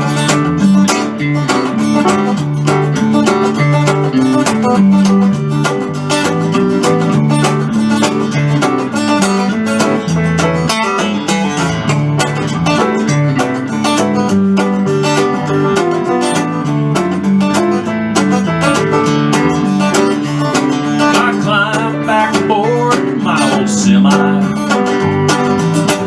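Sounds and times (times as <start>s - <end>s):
acoustic guitar picking: 0.0s - 26.0s
banjo picking: 0.0s - 26.0s
bass line: 0.0s - 26.0s.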